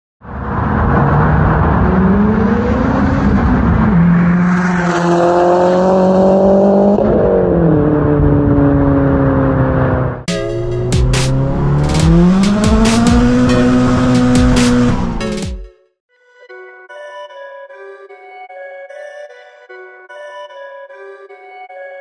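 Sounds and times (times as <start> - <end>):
turbocharged engine accelerating: 0.3 - 15.4.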